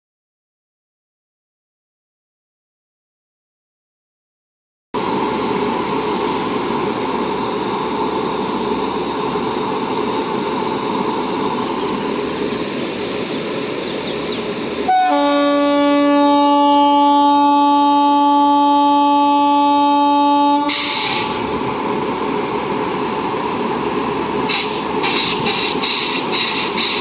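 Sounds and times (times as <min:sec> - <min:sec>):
train rushing rail noise: 0:05.0 - 0:27.0
locomotive horn blast: 0:14.8 - 0:21.4.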